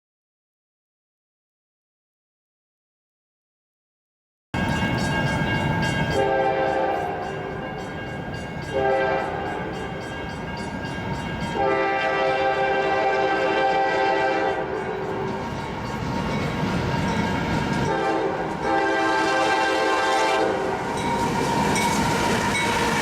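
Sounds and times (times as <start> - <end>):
diesel locomotives rumbling: 4.6 - 23.0
locomotive air horn blasts: 6.2 - 7.7, 8.7 - 9.8, 11.6 - 15.3, 17.9 - 21.0.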